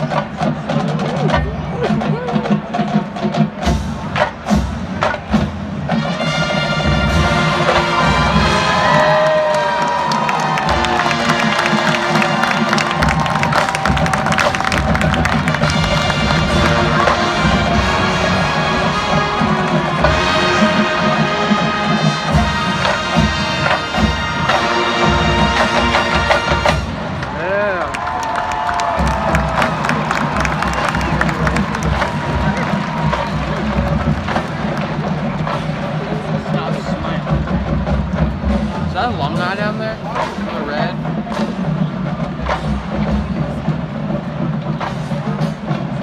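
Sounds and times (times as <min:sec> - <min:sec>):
marching band playing: 0:00.0 - 0:46.0
brass chord: 0:06.0 - 0:09.0, 0:15.4 - 0:27.1.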